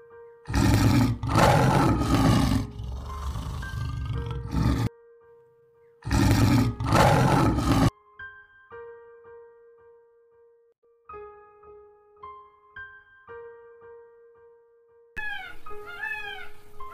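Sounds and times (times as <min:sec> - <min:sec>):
soft piano music: 0:00.0 - 0:06.0, 0:07.9 - 0:16.9
lion roaring: 0:00.5 - 0:04.9, 0:06.0 - 0:07.9.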